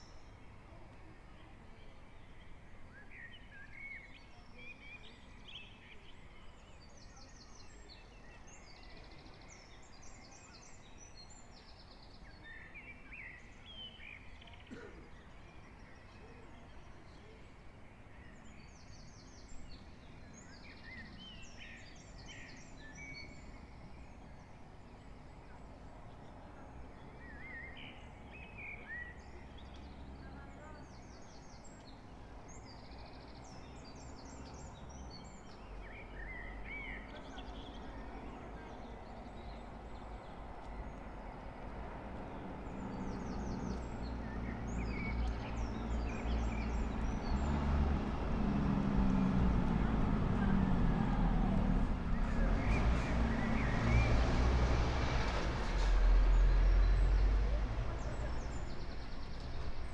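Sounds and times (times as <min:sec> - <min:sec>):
faint low town rumble: 0:00.0 - 0:59.9
birds singing: 0:01.3 - 0:54.4, 0:55.7 - 0:59.9.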